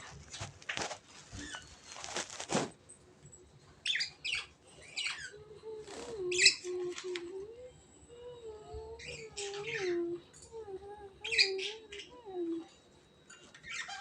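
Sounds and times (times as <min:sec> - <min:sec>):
rustling: 0:00.0 - 0:02.8
birds chirping: 0:03.8 - 0:12.7, 0:13.3 - 0:14.0.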